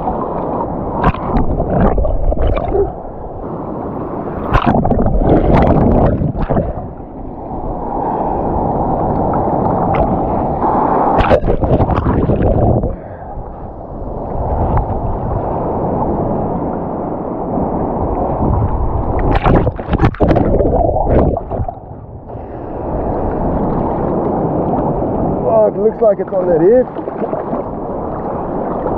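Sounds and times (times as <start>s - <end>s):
sea water washing over rocks: 0.0s - 28.9s
sharp water splashes: 1.0s - 3.0s, 4.4s - 6.9s, 11.0s - 12.8s, 19.2s - 21.8s.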